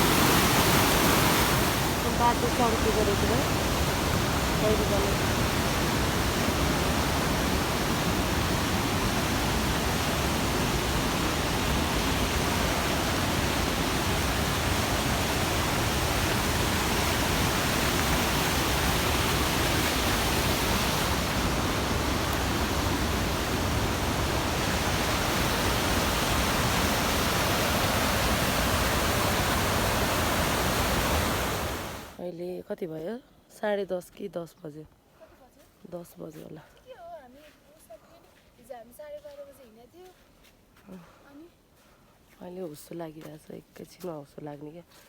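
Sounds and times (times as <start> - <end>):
rushing mountain water: 0.0 - 32.2.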